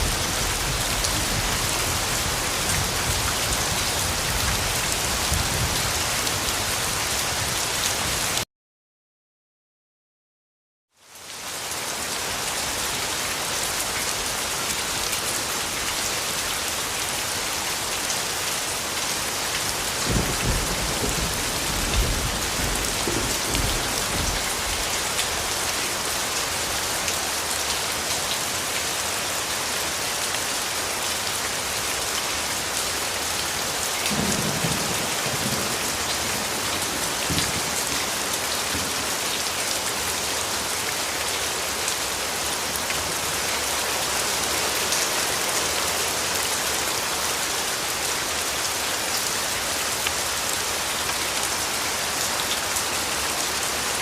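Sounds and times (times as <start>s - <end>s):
steady rain falling: 0.0s - 8.4s, 10.9s - 54.0s
thunder rumbles: 20.1s - 24.8s, 34.1s - 38.9s.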